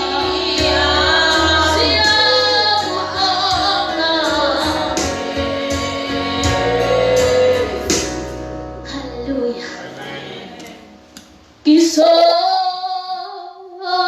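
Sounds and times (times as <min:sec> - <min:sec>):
band with bass and beat: 0:00.0 - 0:09.0
women singing gospel: 0:00.0 - 0:10.9.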